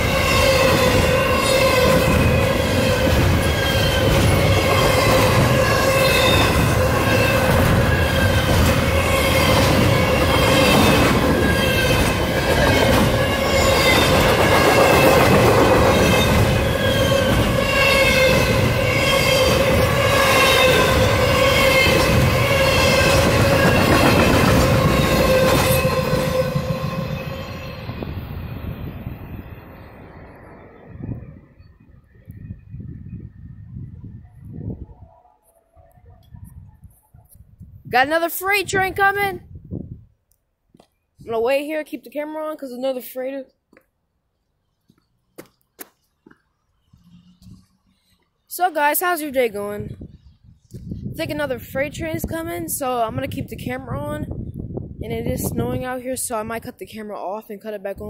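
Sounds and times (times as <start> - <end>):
wheels squealing: 0.0 - 32.5
train wheels rumbling on rail: 0.0 - 34.9.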